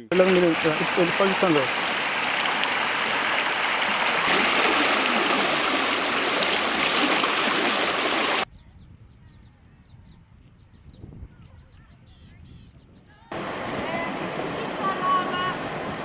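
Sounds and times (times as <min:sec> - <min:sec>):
river rushing over rapids: 0:00.1 - 0:08.4, 0:13.3 - 0:16.0.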